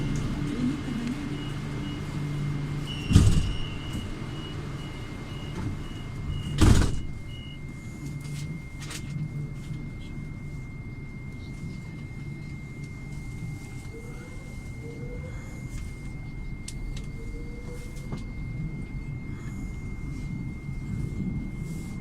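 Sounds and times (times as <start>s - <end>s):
electronic door-warning beep: 0.0s - 8.3s
low hum of train: 0.0s - 22.0s
heavy thuds of train doors: 3.0s - 4.1s, 6.4s - 7.3s.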